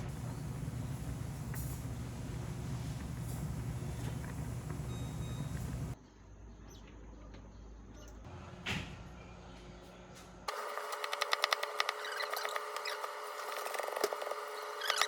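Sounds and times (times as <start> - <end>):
low engine-like rumble: 0.0 - 6.0.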